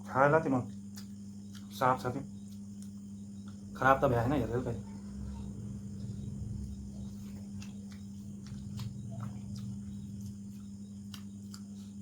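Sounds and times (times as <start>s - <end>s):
steady low hum: 0.0s - 12.0s
chewing smacks and clicks: 0.6s - 3.6s, 7.0s - 12.0s.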